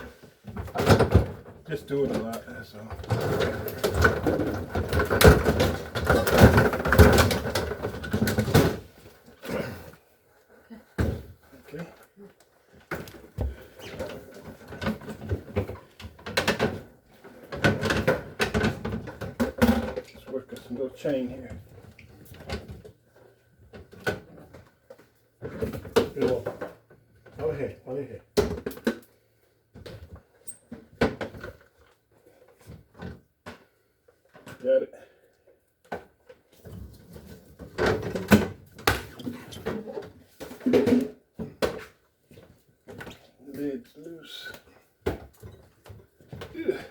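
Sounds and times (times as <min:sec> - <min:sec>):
knocks and clatters: 0:00.4 - 0:09.0.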